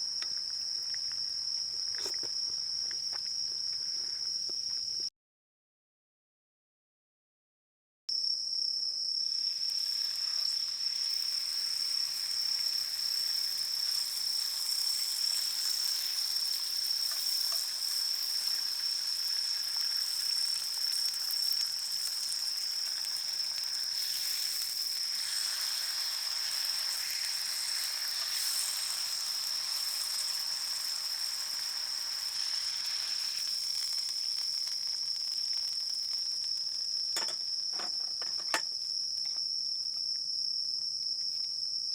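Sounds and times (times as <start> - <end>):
high-pitched insect trill: 0.0 - 5.1, 8.1 - 41.9
hiss of insect song: 0.0 - 5.1, 8.1 - 41.9.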